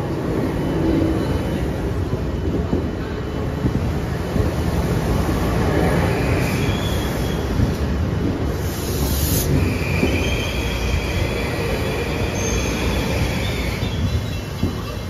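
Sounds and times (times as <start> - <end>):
train wheels rumbling on rail: 0.0 - 15.0
high wheel squeal: 6.2 - 7.6, 9.4 - 14.5.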